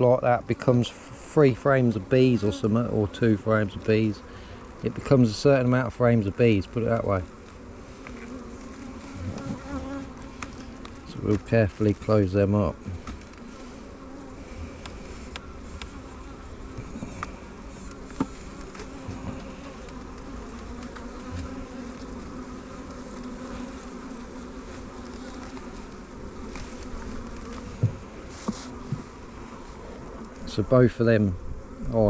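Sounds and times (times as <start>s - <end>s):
honeybees buzzing: 0.0s - 32.0s
knocks on wooden hive parts: 27.7s - 29.1s.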